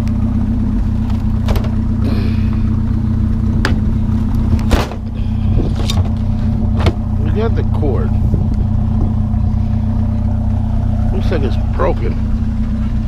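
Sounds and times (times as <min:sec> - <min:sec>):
vehicle engine idling: 0:00.0 - 0:13.0
knocks and clatters: 0:00.9 - 0:01.9, 0:03.6 - 0:05.1, 0:05.7 - 0:07.1.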